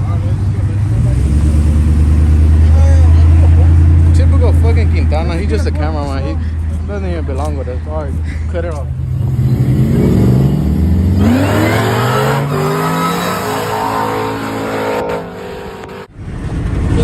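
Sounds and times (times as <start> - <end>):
car engine accelerating hard: 0.0 - 5.8, 8.9 - 16.1.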